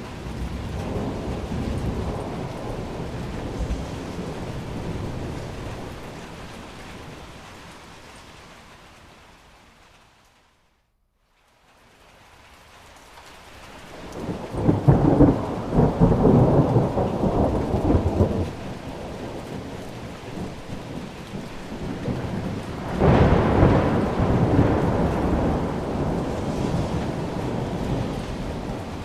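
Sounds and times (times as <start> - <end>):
rolling thunder: 0.0 - 7.9, 14.0 - 29.0
steady rain: 0.0 - 29.0.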